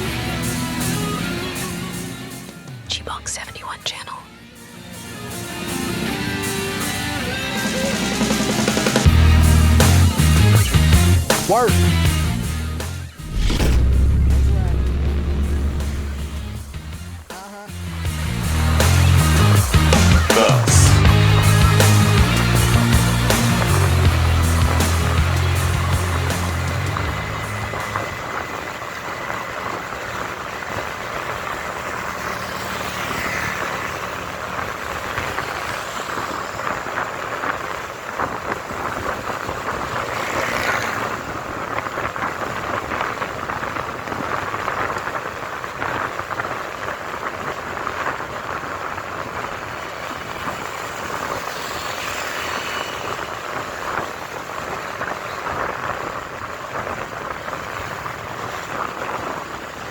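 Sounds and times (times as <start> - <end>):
motorcycle engine: 13.2 - 17.3
vehicles passing: 18.0 - 38.0, 39.3 - 41.7, 49.6 - 55.0.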